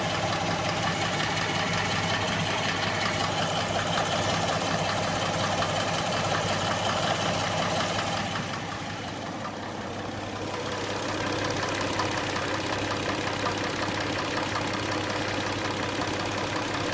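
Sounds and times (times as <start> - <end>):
car engine idling: 0.0 - 16.9
rapid ticking engine knock: 0.0 - 16.9.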